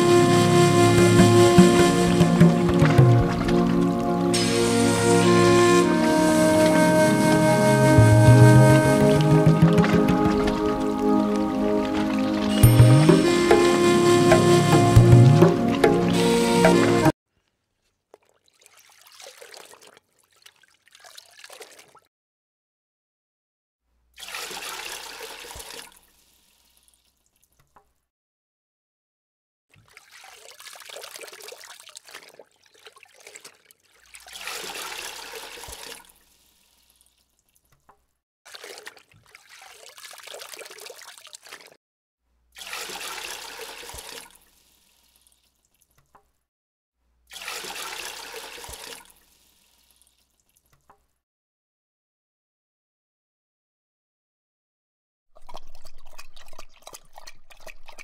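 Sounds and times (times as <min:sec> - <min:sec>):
water pouring into tub: 0:01.6 - 0:04.9, 0:08.0 - 0:13.2, 0:18.1 - 0:22.1, 0:24.2 - 0:27.7, 0:29.7 - 0:37.6, 0:38.5 - 0:41.8, 0:42.6 - 0:46.0, 0:47.3 - 0:50.8, 0:55.4 - 0:58.0.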